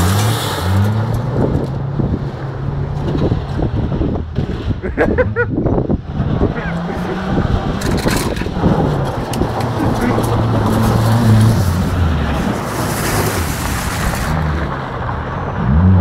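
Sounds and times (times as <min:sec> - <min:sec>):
car engine revving hard: 0:06.0 - 0:14.7
tyres scrabbling on gravel: 0:06.6 - 0:15.2.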